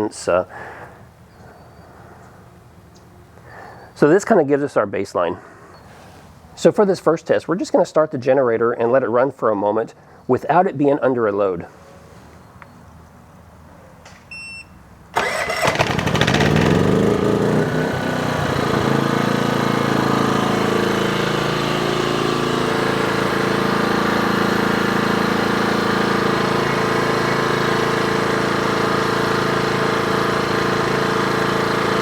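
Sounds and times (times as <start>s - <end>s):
short electronic beep: 14.3s - 14.8s
generator engine starting and running: 15.1s - 32.0s.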